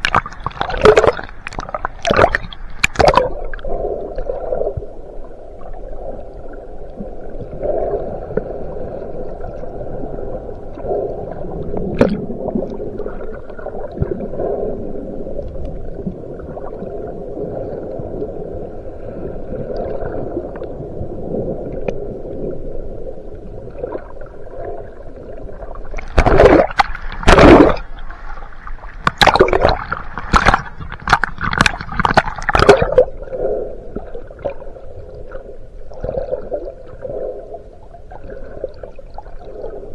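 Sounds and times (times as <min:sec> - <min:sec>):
bubbling bursts: 0:00.0 - 0:04.7, 0:10.8 - 0:14.5, 0:23.7 - 0:34.6
water sloshing and gurgling: 0:00.0 - 0:39.9.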